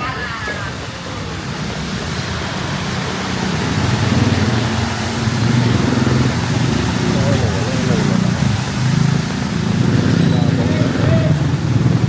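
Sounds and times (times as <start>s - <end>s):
street noise hiss: 0.0s - 12.0s.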